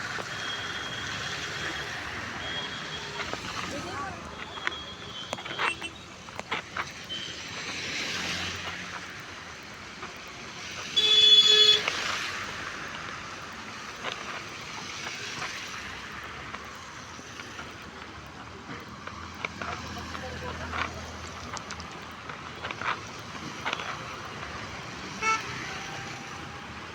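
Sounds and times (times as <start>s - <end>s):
street traffic: 0.0s - 26.9s
vehicle horn blast: 11.0s - 11.8s, 25.2s - 25.6s.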